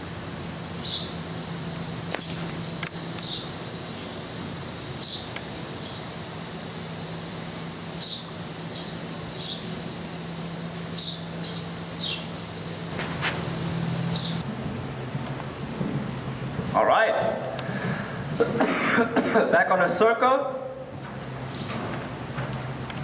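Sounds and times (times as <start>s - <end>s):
steady low hum: 0.0s - 23.0s
small bird chirping: 0.8s - 1.2s, 2.1s - 2.5s, 3.2s - 4.2s, 4.9s - 6.2s, 7.9s - 9.8s, 10.8s - 12.4s, 14.1s - 14.4s.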